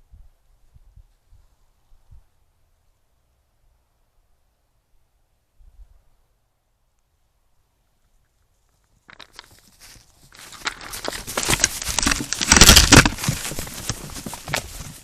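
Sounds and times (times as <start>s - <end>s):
hooves crunching in snow: 8.6s - 15.0s.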